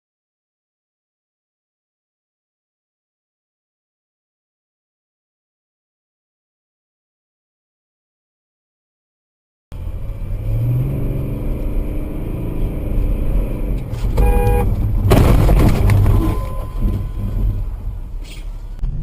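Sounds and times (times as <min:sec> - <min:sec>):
vehicle engine running: 0:12.5 - 0:19.0
short horn honk: 0:14.1 - 0:14.8, 0:15.7 - 0:18.8.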